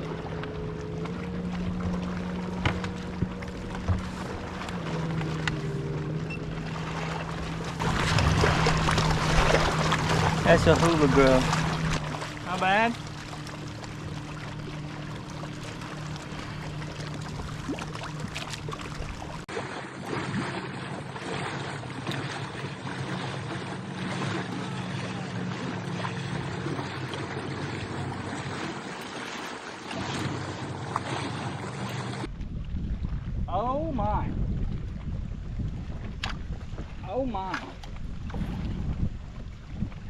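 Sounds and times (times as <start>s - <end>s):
low steady hum: 0.0s - 19.5s
water lapping: 0.0s - 40.0s
wind: 0.0s - 40.0s.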